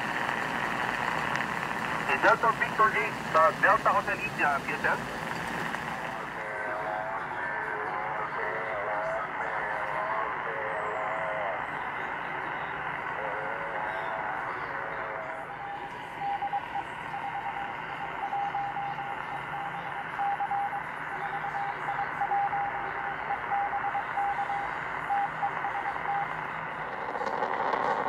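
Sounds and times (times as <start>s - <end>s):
radio static hiss: 0.0s - 20.2s, 20.8s - 28.0s
morse code tone: 15.3s - 28.0s.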